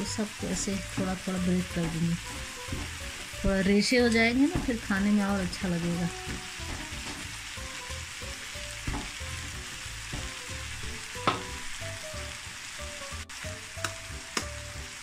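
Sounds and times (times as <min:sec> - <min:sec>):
chicken sizzling in a pan: 0:00.0 - 0:15.0
spatula stirring and chopping: 0:00.1 - 0:11.7.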